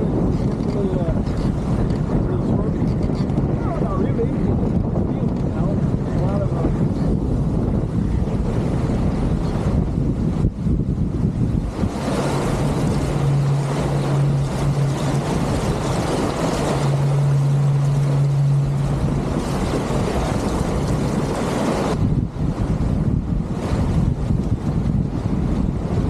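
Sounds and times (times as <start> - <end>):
water rushing past a boat: 0.0 - 26.0
wind rushing: 0.0 - 26.0
steady low hum: 6.8 - 26.0.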